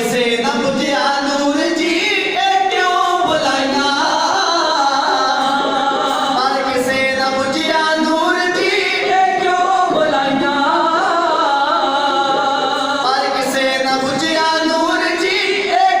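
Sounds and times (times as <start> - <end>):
devotional hymn singing: 0.0 - 16.0.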